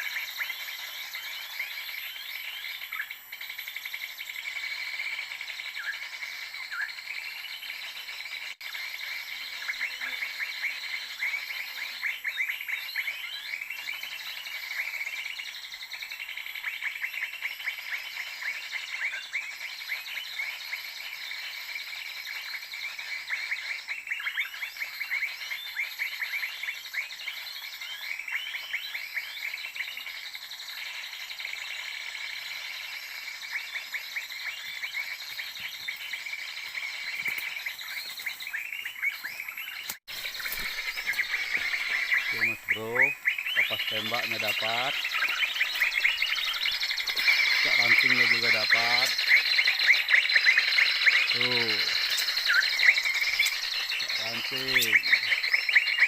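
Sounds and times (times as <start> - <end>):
small birds chirping: 0.0 - 56.0
high-pitched insect drone: 40.1 - 55.8.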